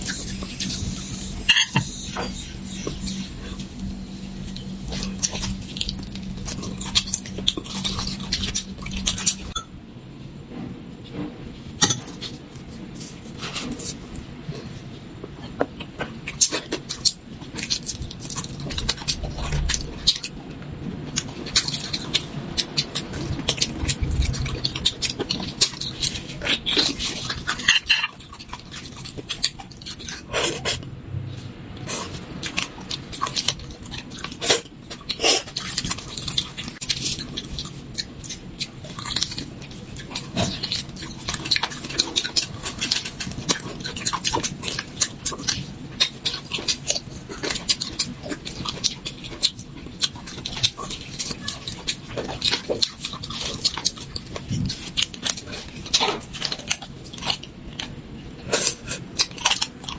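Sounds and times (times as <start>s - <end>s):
person chewing and slurping: 0.0s - 9.7s, 31.8s - 59.9s.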